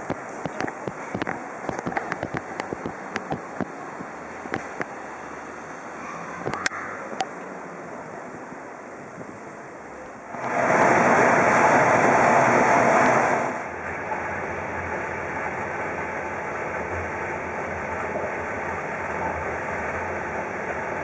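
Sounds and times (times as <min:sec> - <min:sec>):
train car rushing and rumbling: 0:07.6 - 0:21.0.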